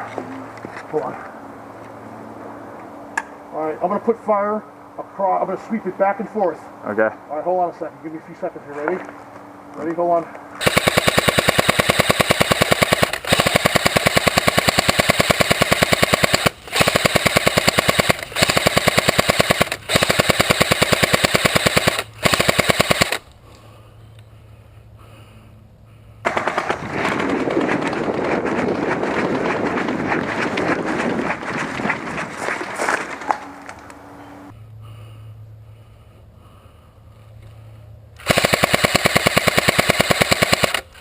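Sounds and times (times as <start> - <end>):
airsoft gun full-auto bursts: 10.6 - 23.3, 26.2 - 27.2, 38.2 - 41.0
rough rustling noise: 26.6 - 33.9.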